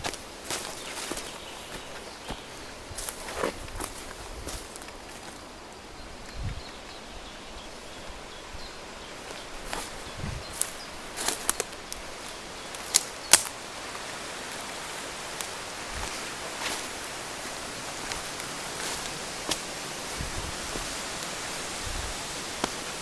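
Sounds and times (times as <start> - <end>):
footsteps on twigs and forest litter: 0.0 - 5.5, 9.1 - 23.0
steady outdoor hiss: 0.0 - 23.0
twigs cracking: 9.2 - 23.0.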